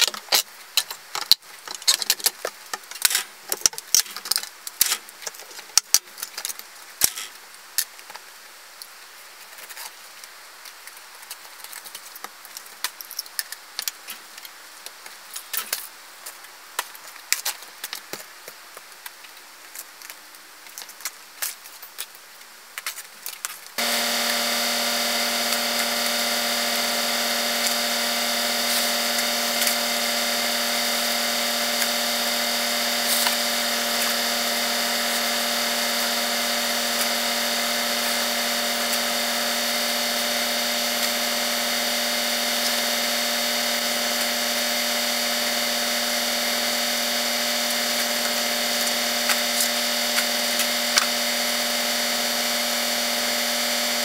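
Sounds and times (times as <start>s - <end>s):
steady machine hum: 23.8s - 54.0s.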